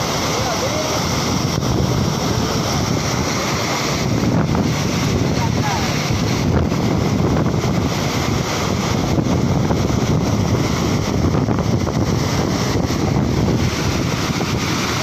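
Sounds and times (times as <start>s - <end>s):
wind buffeting microphone: 0.8s - 15.0s.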